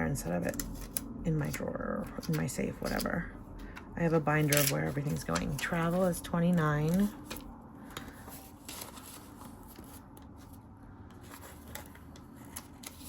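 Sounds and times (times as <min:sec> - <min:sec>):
paper rustling: 0:06.8 - 0:13.0.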